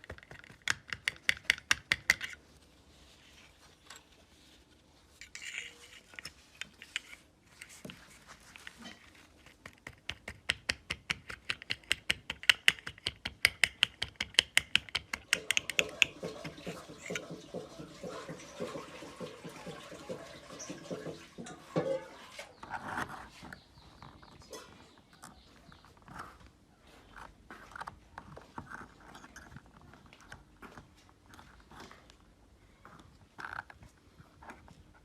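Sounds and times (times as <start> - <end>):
scraping on metal parts: 5.2 - 7.7
metal clicks and taps: 9.7 - 16.1.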